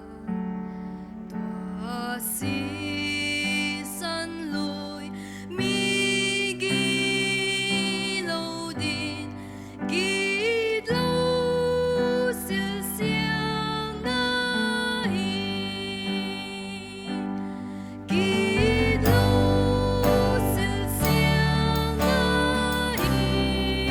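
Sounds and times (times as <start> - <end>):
person singing gospel song: 2.0 - 23.9
instrumental backing: 18.1 - 23.9.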